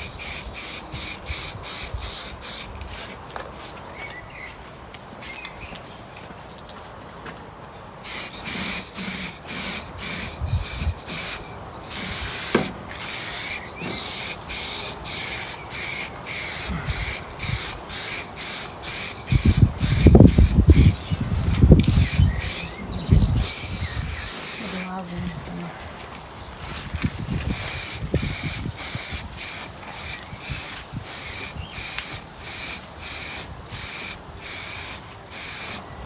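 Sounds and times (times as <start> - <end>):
spray can hissing: 0.0 - 3.1, 8.0 - 21.0, 21.8 - 22.7, 23.3 - 25.0, 27.5 - 35.8.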